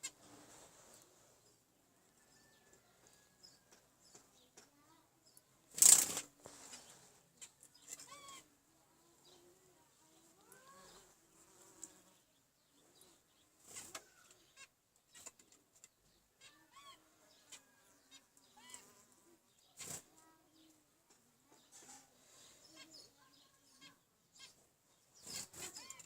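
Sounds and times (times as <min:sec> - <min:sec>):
wing flutters: 0:05.7 - 0:06.9, 0:19.8 - 0:20.2, 0:25.2 - 0:26.0
finches chirping: 0:06.8 - 0:11.1, 0:11.7 - 0:20.8, 0:21.5 - 0:26.0.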